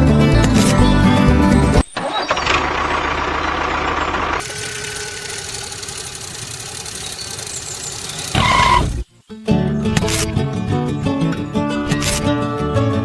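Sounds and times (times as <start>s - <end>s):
engine running: 0.0s - 9.1s.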